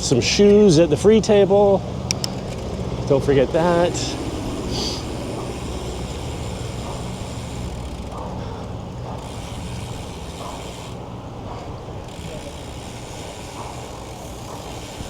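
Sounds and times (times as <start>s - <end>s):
noisy background: 0.0s - 15.0s
vehicle engine hum: 0.0s - 15.0s.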